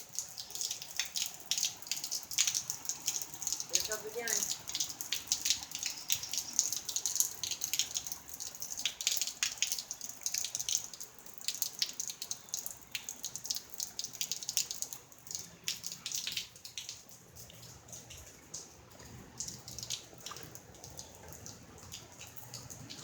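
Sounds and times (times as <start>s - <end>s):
heavy rain falling: 0.0s - 10.6s
raindrops splashing close by: 0.0s - 23.0s.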